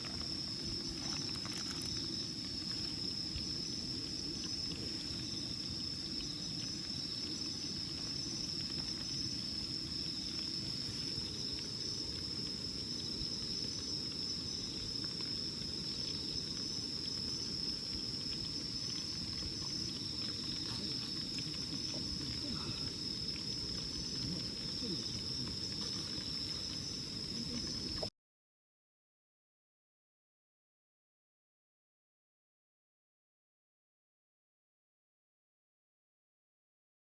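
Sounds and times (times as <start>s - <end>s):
faint ticks: 0.0s - 28.1s
insects chorus: 0.0s - 28.1s.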